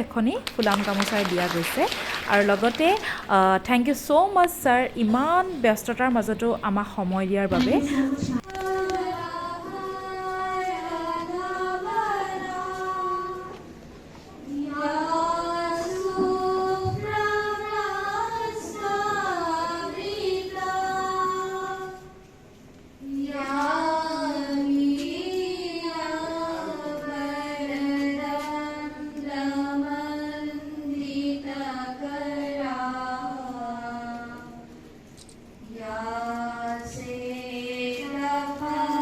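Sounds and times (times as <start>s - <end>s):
woman singing: 0.0s - 13.6s, 35.6s - 39.0s.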